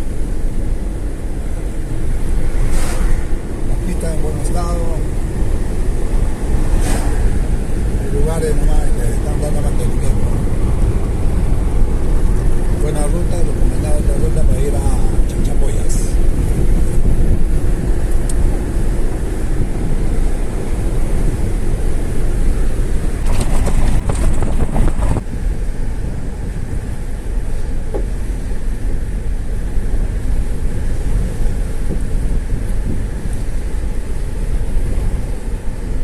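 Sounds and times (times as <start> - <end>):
car engine and tyre rumble: 0.0 - 36.0
rush of noise: 0.0 - 36.0.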